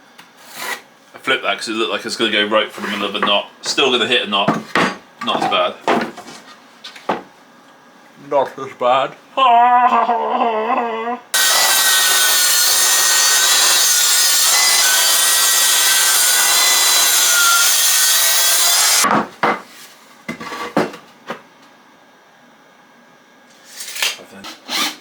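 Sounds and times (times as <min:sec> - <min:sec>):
power saw cutting timber: 0:11.4 - 0:19.0.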